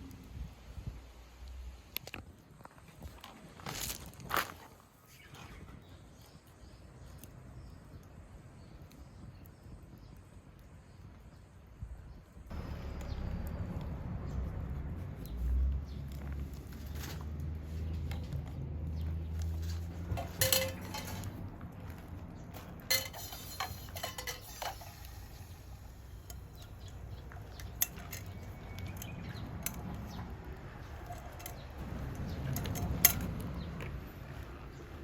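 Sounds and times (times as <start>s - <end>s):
metal cookware clinking: 19.6s - 21.4s, 22.9s - 29.8s, 31.0s - 31.7s, 32.5s - 33.3s.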